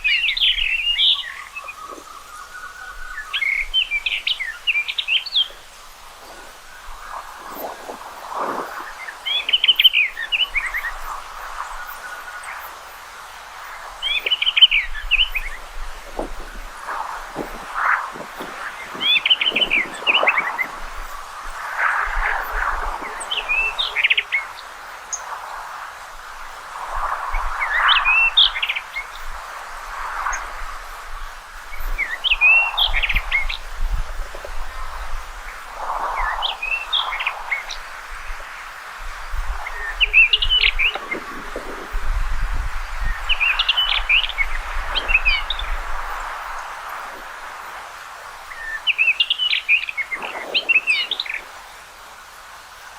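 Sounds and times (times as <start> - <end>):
rushing background noise: 5.7 - 32.6
bird singing whistled notes: 8.6 - 12.6, 14.0 - 25.2, 48.5 - 51.5.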